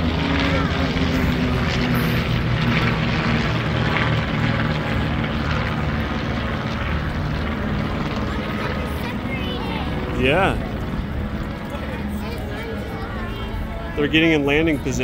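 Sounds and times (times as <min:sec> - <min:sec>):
propeller planes droning overhead: 0:00.0 - 0:15.0.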